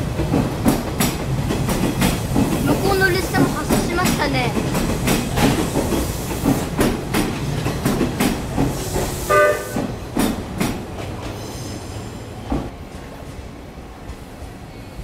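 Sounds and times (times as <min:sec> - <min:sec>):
train wheels clacking over rail joints: 0:00.0 - 0:11.8.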